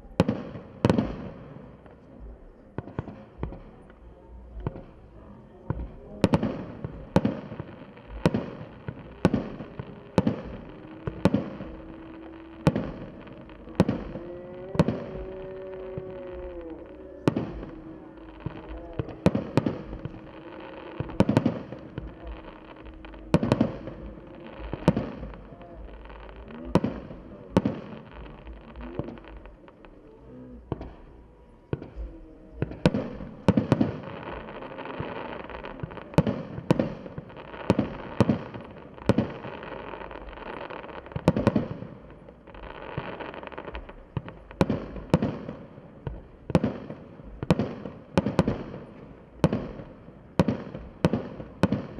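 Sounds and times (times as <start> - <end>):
fireworks bursting with bangs: 0.0 - 51.9
rolling echo: 0.0 - 51.9.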